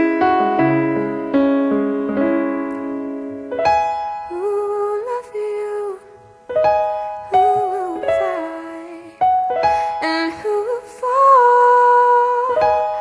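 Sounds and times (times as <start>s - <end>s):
piano chords: 0.0s - 13.0s
young woman singing: 4.2s - 13.0s.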